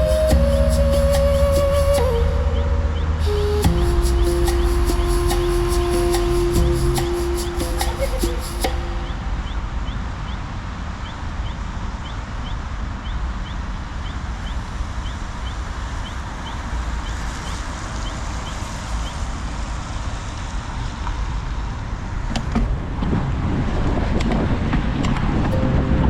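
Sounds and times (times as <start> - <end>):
wind rumbling on microphone: 0.0 - 12.0, 14.2 - 26.0
tyres hissing on wet streets: 14.3 - 22.3.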